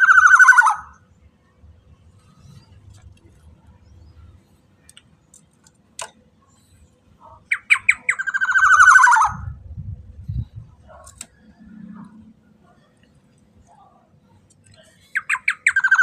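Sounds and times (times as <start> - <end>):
bird calling: 0.0 - 1.0, 7.2 - 9.6, 14.7 - 16.0
faint low rumble: 8.7 - 14.0.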